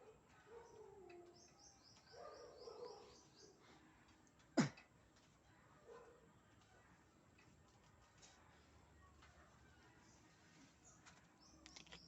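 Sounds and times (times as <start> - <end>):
bird chirping: 0.0 - 3.7, 9.7 - 12.0.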